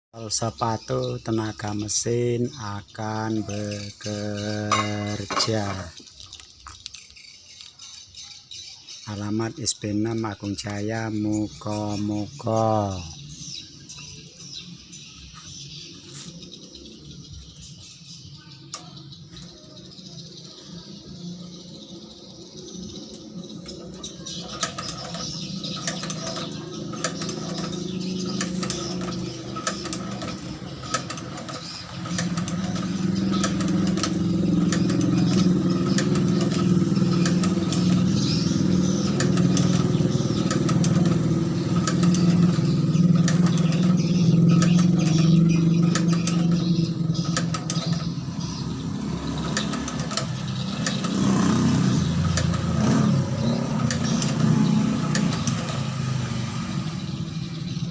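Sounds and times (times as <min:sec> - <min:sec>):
small engine humming: 0:00.3 - 0:57.9
sharp mechanism clicks: 0:22.9 - 0:56.2.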